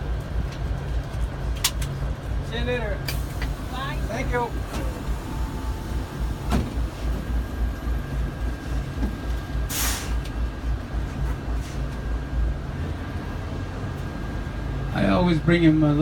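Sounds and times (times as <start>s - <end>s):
diesel engine rumbling: 0.0s - 16.0s
air brakes hissing: 3.1s - 7.2s, 9.6s - 10.4s.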